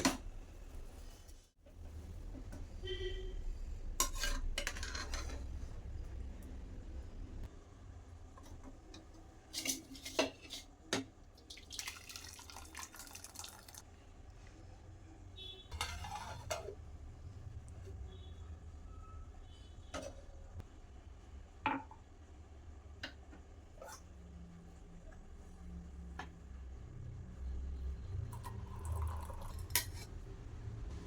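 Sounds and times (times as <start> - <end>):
dishes and cutlery clinking: 4.0 - 5.7.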